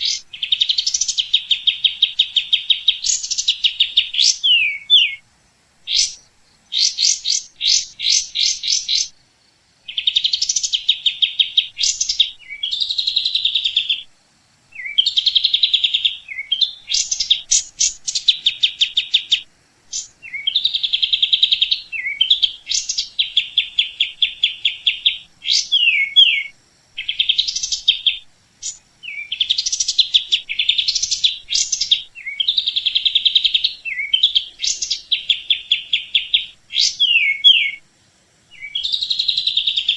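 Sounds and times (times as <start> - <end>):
small bird singing trills: 0.0 - 5.2, 5.8 - 9.2, 9.8 - 37.9, 38.5 - 39.9.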